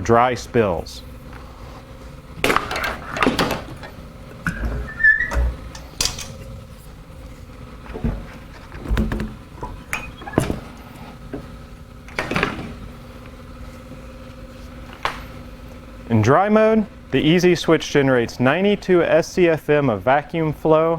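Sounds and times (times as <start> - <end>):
plastic parts knocking and clunking: 2.4 - 4.8, 7.9 - 10.7
brief high squeak: 4.5 - 5.5.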